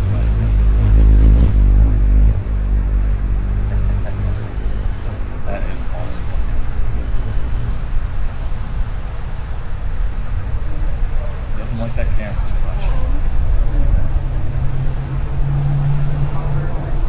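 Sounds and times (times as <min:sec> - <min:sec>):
low rumble: 0:00.0 - 0:11.0
high-pitched insect drone: 0:00.0 - 0:17.0.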